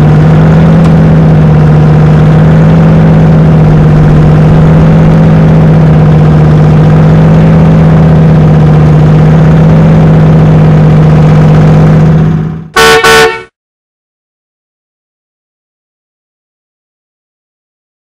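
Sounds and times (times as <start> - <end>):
car engine idling: 0.0 - 12.8.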